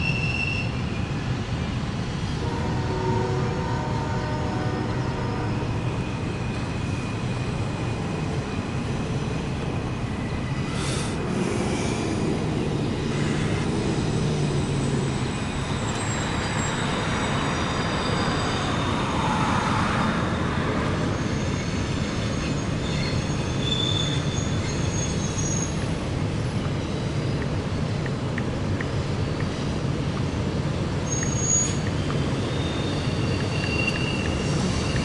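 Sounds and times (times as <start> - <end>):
high-pitched wheel squeal: 0.0 - 0.9, 13.0 - 25.8, 31.0 - 35.0
train wheels rumbling on rail: 0.0 - 35.0
cars passing on road: 0.6 - 35.0.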